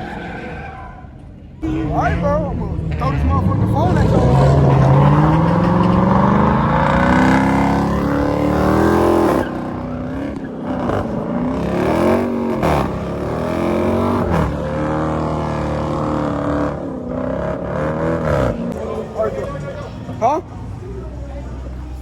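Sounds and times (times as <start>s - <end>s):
car engine revving hard: 1.6s - 18.8s.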